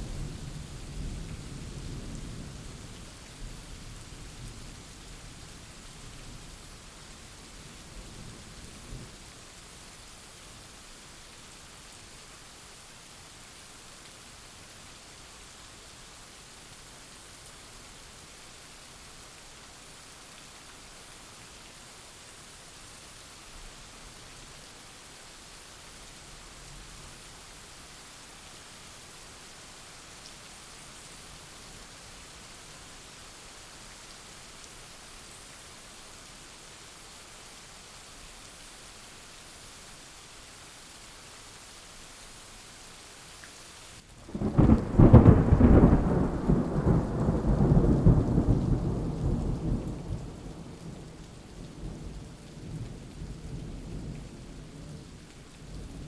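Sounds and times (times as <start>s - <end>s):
rain falling: 0.0s - 56.0s
thunder clap and rumble: 44.3s - 50.4s.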